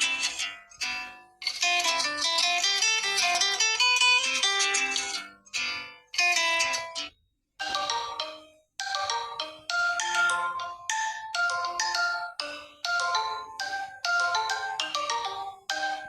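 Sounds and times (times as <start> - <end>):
phone alarm melody: 7.6 - 16.0.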